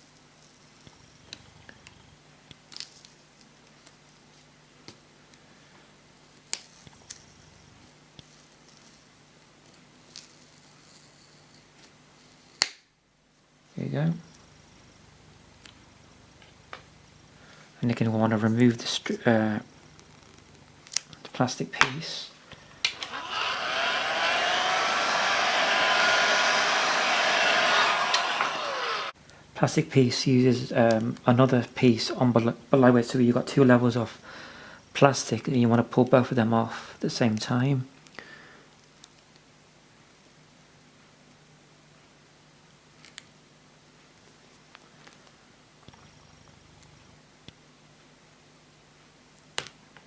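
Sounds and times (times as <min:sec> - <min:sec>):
hot-air blower running: 0:22.5 - 0:29.4.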